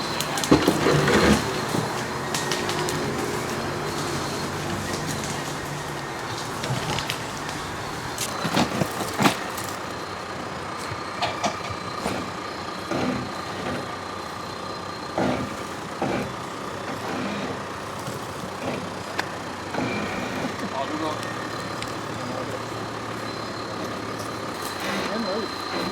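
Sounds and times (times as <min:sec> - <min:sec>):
knocks and clunks: 0:00.0 - 0:09.8
off-road vehicle engine running: 0:00.0 - 0:25.9.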